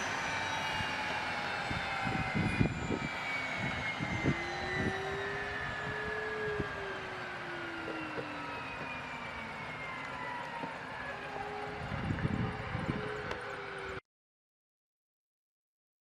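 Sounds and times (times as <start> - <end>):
jet engines whining: 0.0 - 14.0.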